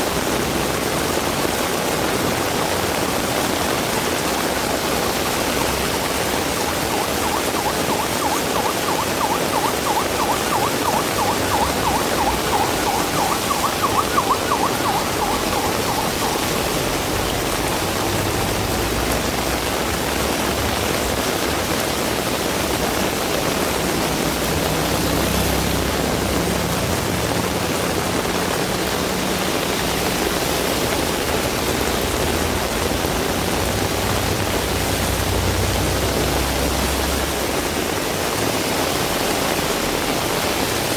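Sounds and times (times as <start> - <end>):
heavy rain: 0.0 - 40.9
fast-warbling tone: 5.0 - 19.0.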